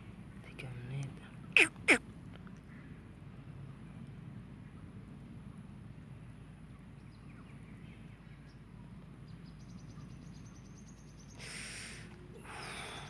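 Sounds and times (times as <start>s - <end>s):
short hissing sounds: 11.4s - 12.1s.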